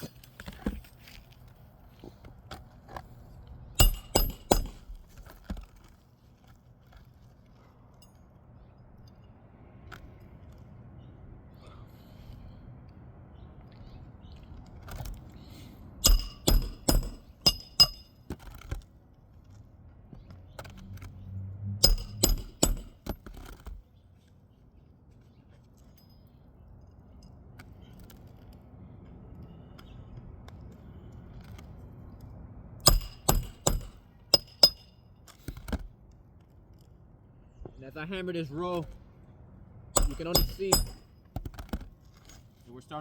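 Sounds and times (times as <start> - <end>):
hammer blows on nails: 3.8 - 5.0, 16.0 - 18.2, 21.8 - 23.8, 32.8 - 35.9, 40.0 - 41.5.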